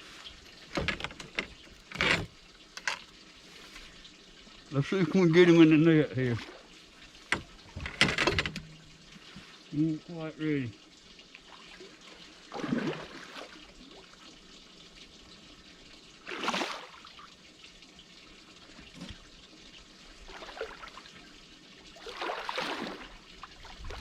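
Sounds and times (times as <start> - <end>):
fish splashing in water: 11.4 - 14.0, 16.2 - 17.3, 20.2 - 21.1, 22.0 - 24.0.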